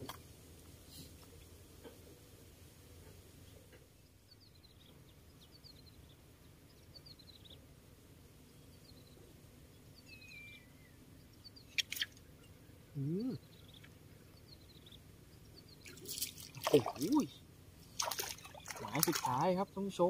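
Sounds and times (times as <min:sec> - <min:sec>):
low background noise: 0:00.0 - 0:20.0
small birds chirping: 0:02.8 - 0:20.0.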